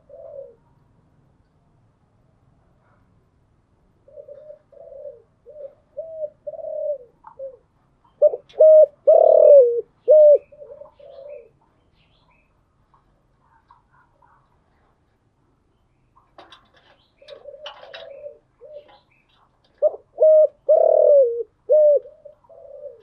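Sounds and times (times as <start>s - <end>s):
dove cooing: 0.0s - 0.8s, 4.0s - 11.6s, 16.4s - 23.0s.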